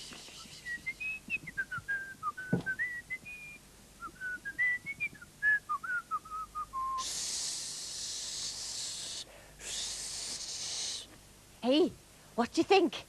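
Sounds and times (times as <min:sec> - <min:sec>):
person whistling a tune: 0:00.3 - 0:07.1.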